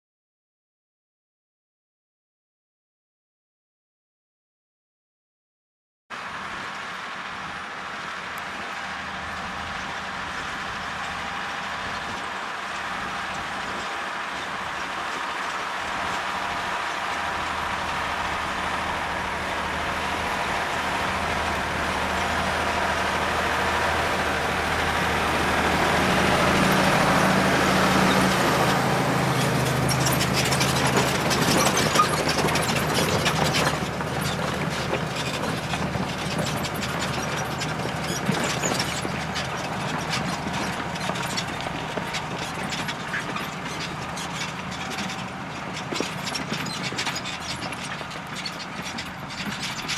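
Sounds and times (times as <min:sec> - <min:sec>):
tractor diesel engine under load: 0:06.1 - 0:49.9
rapid clattering and ticking: 0:12.8 - 0:49.9.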